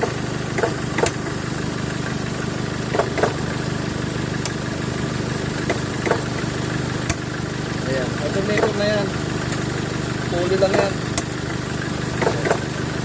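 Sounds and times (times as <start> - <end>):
car engine idling: 0.0 - 13.0
sharp clicks: 0.6 - 1.2, 2.9 - 3.4.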